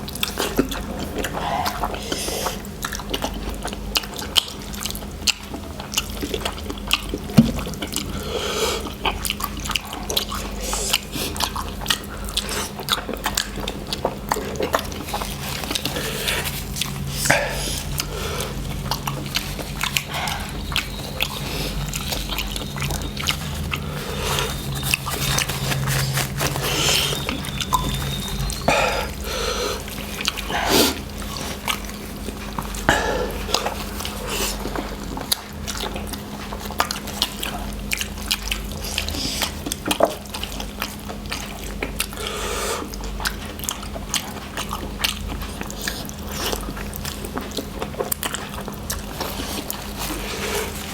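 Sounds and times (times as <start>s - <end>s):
steady low hum: 0.0s - 50.9s
wet chewing and slurping: 0.0s - 50.9s.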